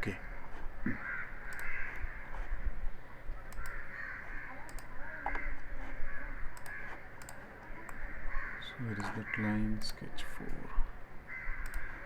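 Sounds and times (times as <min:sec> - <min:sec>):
faint clicks: 0:01.4 - 0:02.1, 0:03.4 - 0:03.8, 0:04.6 - 0:05.5, 0:06.5 - 0:08.0, 0:11.6 - 0:12.0.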